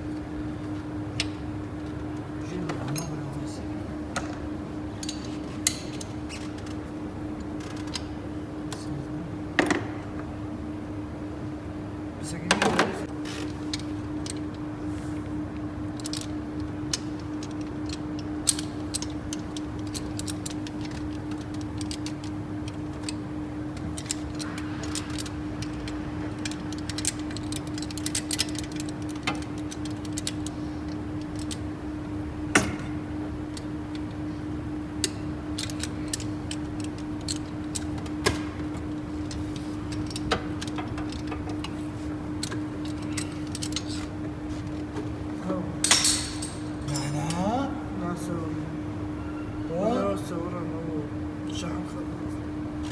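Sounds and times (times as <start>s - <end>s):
steady low hum: 0.0s - 52.9s
metallic tool clicks and clinks: 45.8s - 47.3s.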